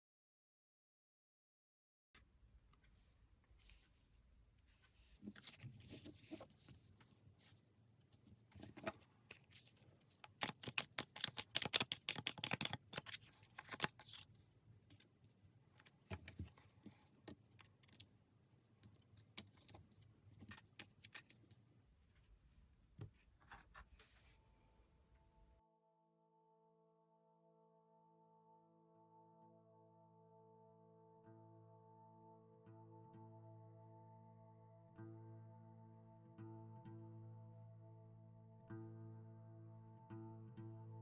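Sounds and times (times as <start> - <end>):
cards being shuffled: 5.2 - 7.2, 8.6 - 14.3, 19.3 - 21.6
rapid card slaps: 10.2 - 14.2.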